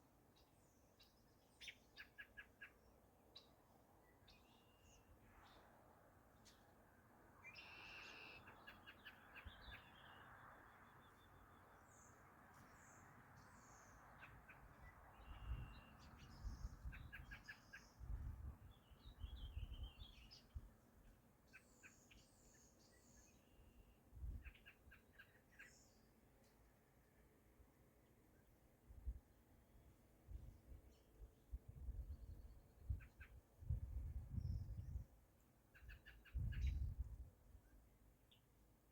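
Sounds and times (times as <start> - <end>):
birds chirping and trilling: 7.4 - 26.2.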